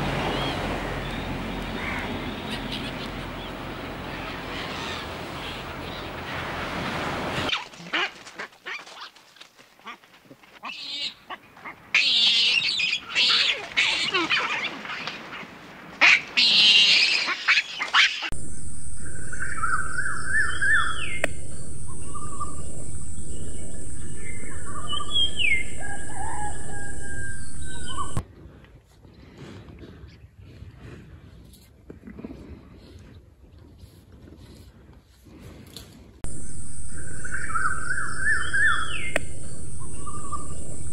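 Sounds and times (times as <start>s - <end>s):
birds chirping: 0.0s - 6.6s, 17.1s - 28.2s, 36.3s - 40.9s
low hum: 18.3s - 28.2s, 36.2s - 40.9s
steady high-pitched hiss: 18.4s - 28.2s, 36.3s - 40.9s.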